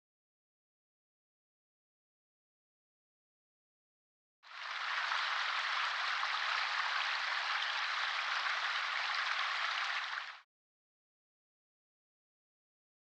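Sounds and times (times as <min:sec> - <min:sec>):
rain pattering on a surface: 0:04.5 - 0:10.4.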